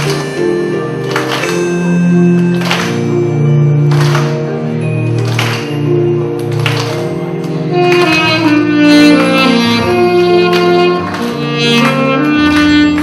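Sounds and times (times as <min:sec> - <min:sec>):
sustained chordal accompaniment: 0:00.0 - 0:13.0
saxophone melody: 0:07.6 - 0:13.0.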